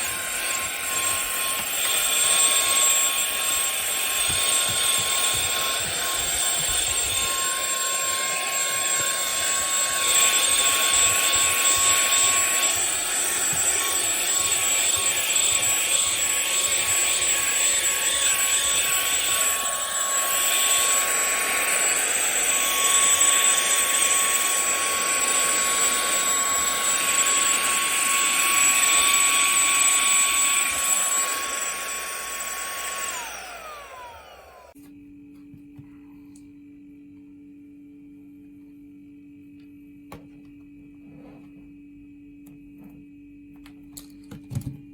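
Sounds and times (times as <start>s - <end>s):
handheld vacuum whining: 0.0s - 34.8s
vacuum motor spinning down: 0.0s - 34.8s.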